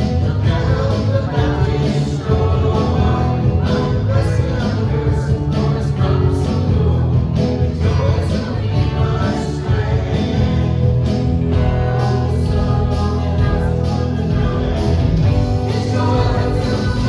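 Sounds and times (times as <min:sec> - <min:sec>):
worship band music: 0:00.0 - 0:17.0
person singing: 0:11.5 - 0:17.0.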